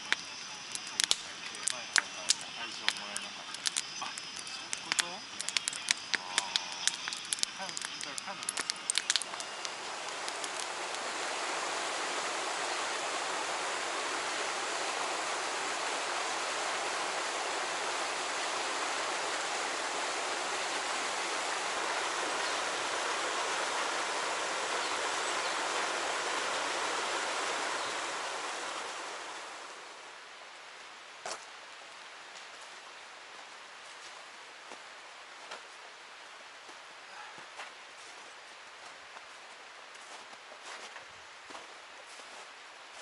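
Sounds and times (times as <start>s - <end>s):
oil sizzling while deep-frying: 0.0s - 28.4s.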